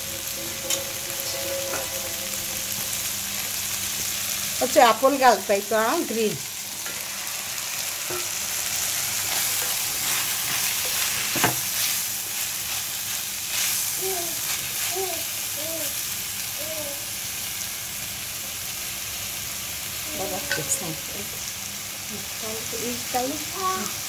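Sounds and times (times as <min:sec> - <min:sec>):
prawns sizzling in a pan: 0:00.0 - 0:24.0
spoon stirring in a pan: 0:06.8 - 0:14.9.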